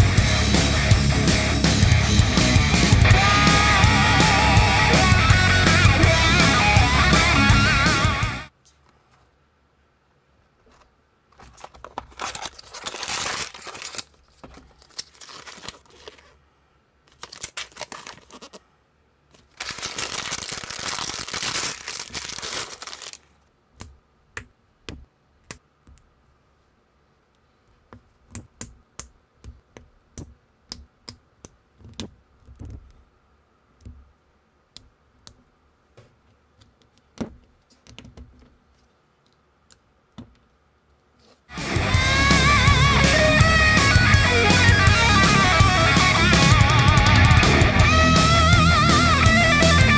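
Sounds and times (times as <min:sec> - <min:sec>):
packaging tearing and crinkling: 0:11.4 - 0:16.4, 0:17.1 - 0:18.6, 0:19.3 - 0:23.3.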